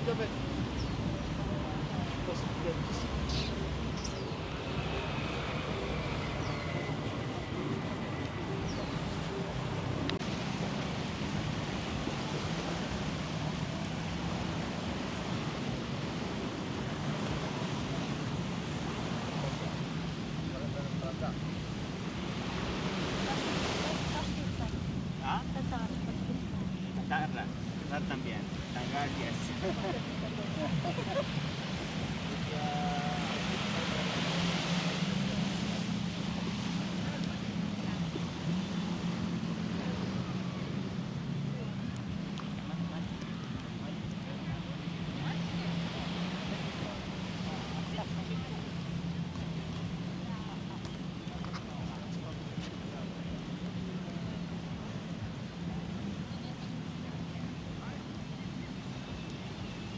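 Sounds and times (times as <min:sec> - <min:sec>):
low engine drone: 0:00.0 - 0:12.7
surf washing: 0:00.0 - 0:59.9.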